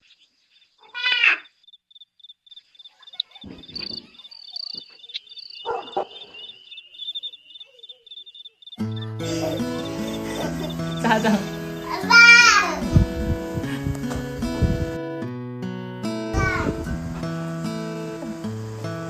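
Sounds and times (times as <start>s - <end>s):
insects chirping: 0.0s - 15.0s, 16.1s - 19.0s
soft rustles: 11.9s - 15.0s.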